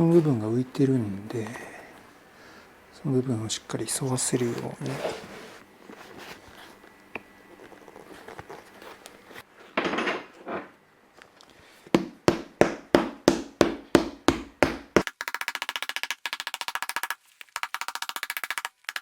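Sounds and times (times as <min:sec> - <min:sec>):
rustling handling of boot: 0:03.9 - 0:09.5
hammer tapping rubber sole: 0:12.0 - 0:17.1.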